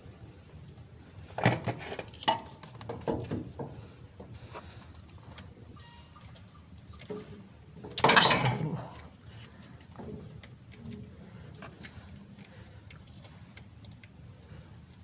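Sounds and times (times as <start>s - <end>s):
oil filter clinking and scraping: 1.0s - 12.2s.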